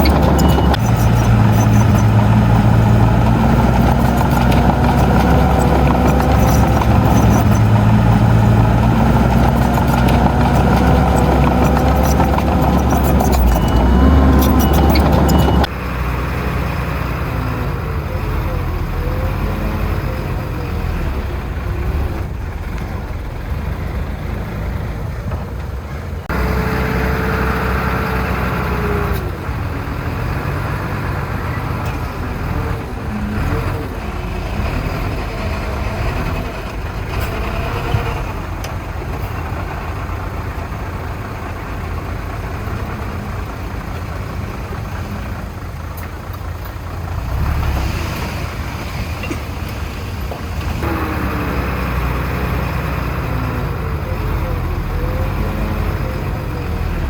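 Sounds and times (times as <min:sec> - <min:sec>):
heavy diesel machines running: 0:00.0 - 0:57.0.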